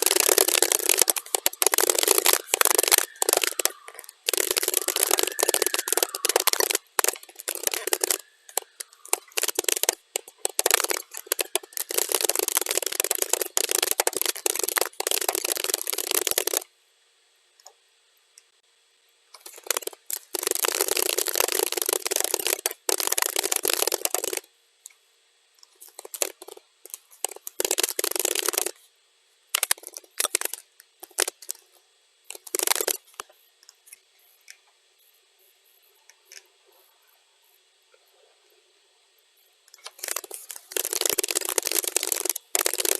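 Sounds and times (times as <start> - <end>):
computer keyboard typing: 0.0 - 16.6, 19.4 - 24.4, 25.8 - 28.7, 29.6 - 31.6, 32.3 - 33.2, 39.8 - 42.9.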